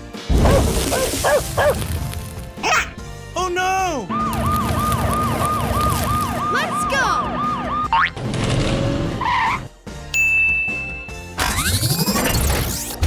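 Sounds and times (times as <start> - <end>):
cartoon siren wail: 4.0 - 8.1.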